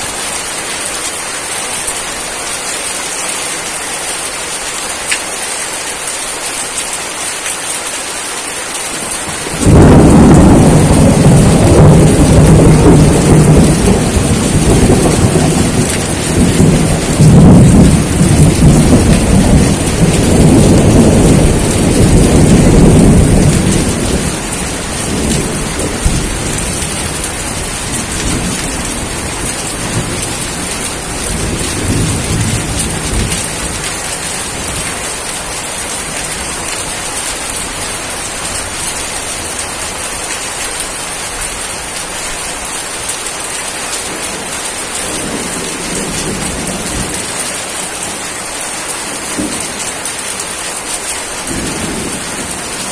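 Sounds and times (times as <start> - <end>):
steady rain: 0.0 - 52.9
thunder rumbling: 9.1 - 39.9, 51.4 - 52.9.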